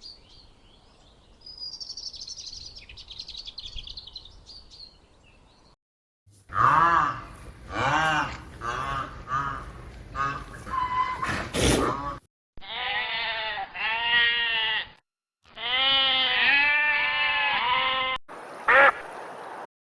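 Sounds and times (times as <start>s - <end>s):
rough noisy animal sound: 6.4s - 12.3s
long drawn-out animal calls: 6.5s - 14.9s, 15.5s - 19.0s.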